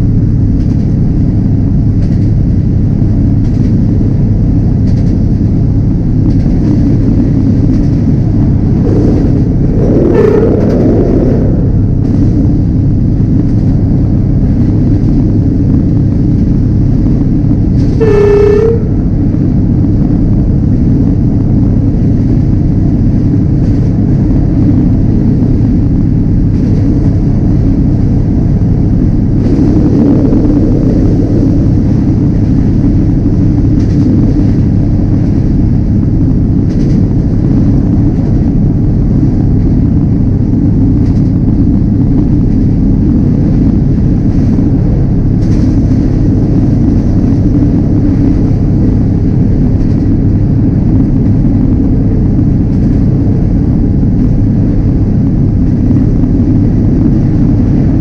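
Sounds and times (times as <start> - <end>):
diesel train rumbling: 0.0 - 58.0
train horn blast: 8.8 - 11.8, 17.8 - 19.4.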